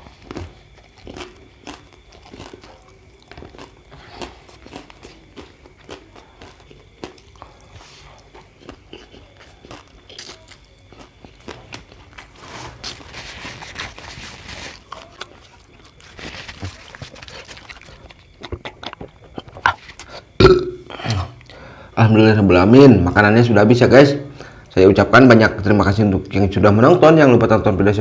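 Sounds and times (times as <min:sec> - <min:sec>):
chewing and crunching: 0:00.0 - 0:21.6
wet mouth clicks: 0:16.8 - 0:21.6.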